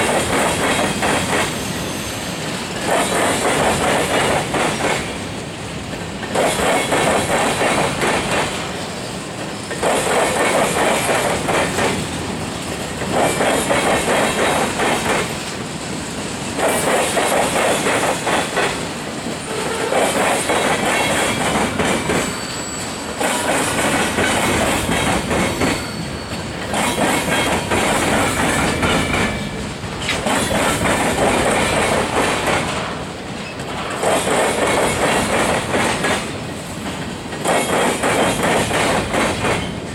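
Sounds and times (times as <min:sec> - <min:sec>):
train wheels clattering over joints: 0:00.0 - 0:39.9
faint wheel squeal: 0:01.4 - 0:02.4, 0:22.2 - 0:23.4, 0:25.5 - 0:27.0.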